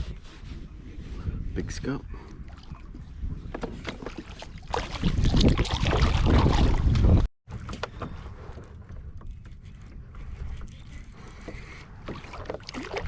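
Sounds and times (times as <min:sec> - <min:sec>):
wind on microphone: 0:00.0 - 0:13.0
light clicks and knocks on kayak: 0:03.4 - 0:04.4, 0:07.5 - 0:12.8.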